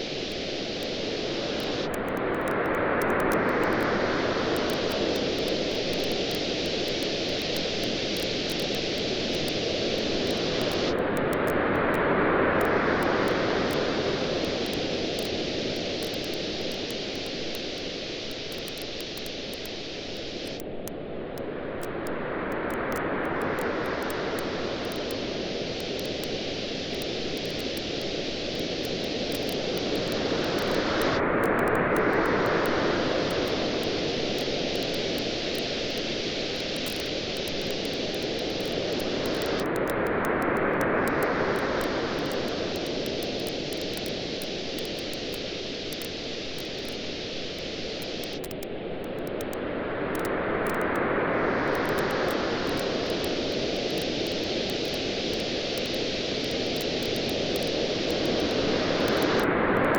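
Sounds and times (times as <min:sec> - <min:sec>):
campfire crackling and popping: 0:14.4 - 0:20.8, 0:22.7 - 0:40.2, 0:41.1 - 0:49.6, 0:51.7 - 0:59.5
surf hissing: 0:22.8 - 0:48.5, 0:50.2 - 0:59.9
waves washing on shore: 0:23.2 - 0:48.2.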